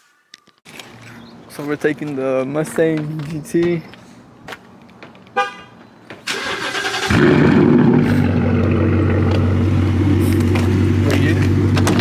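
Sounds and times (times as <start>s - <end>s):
car engine revving and idling: 7.0s - 12.0s.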